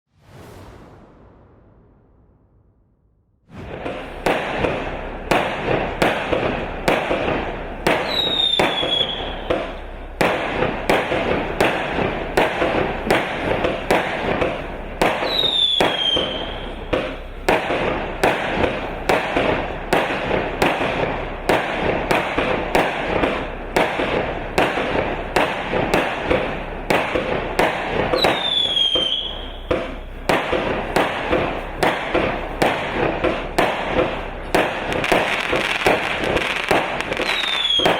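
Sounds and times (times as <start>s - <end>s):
dense hiss of fireworks: 0.1s - 37.9s
fireworks launch and burst reports: 0.1s - 37.9s.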